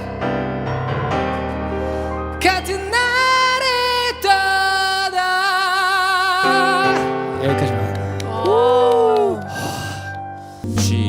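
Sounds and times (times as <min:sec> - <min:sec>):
man singing high wordless notes: 0:00.0 - 0:00.8, 0:02.3 - 0:09.4, 0:10.6 - 0:11.0
keyboard chords: 0:00.0 - 0:04.8, 0:06.3 - 0:11.0.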